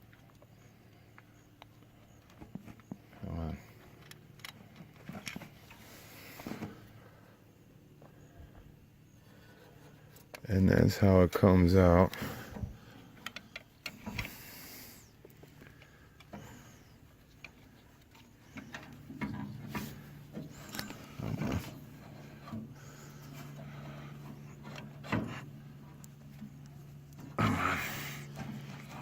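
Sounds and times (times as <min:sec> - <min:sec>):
faint low hum: 0:00.0 - 0:29.0
hand tools clicking and scraping: 0:13.0 - 0:29.0.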